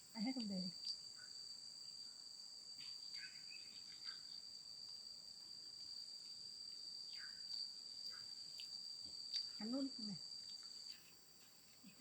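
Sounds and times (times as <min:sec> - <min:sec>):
insects shrill chorus: 0:00.0 - 0:05.0, 0:06.7 - 0:11.0.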